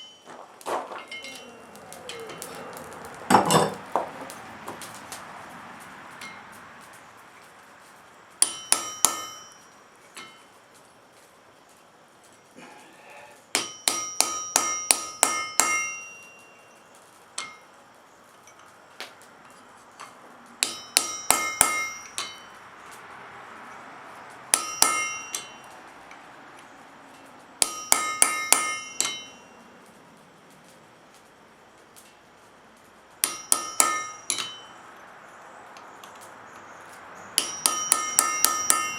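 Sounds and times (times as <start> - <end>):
hammer striking chisel on iron: 8.4 - 9.6, 13.6 - 16.2, 20.6 - 22.4, 24.5 - 25.6, 27.6 - 29.4, 33.2 - 34.7, 37.4 - 38.9.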